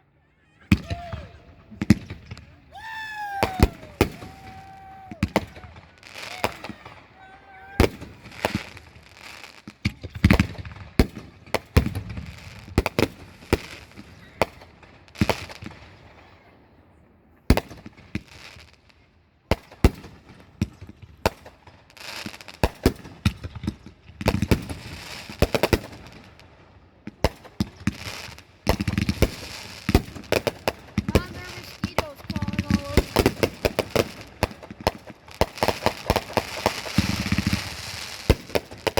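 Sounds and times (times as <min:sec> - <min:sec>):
fireworks crackling: 0:00.7 - 0:16.0, 0:27.2 - 0:38.9
fireworks sharp bangs: 0:00.7 - 0:16.2, 0:27.2 - 0:38.9.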